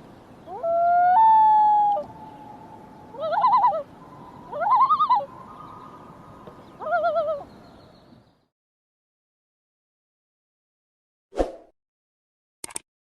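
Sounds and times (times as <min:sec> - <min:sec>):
animal calling wavering in pitch: 0:00.5 - 0:06.0, 0:06.8 - 0:07.5.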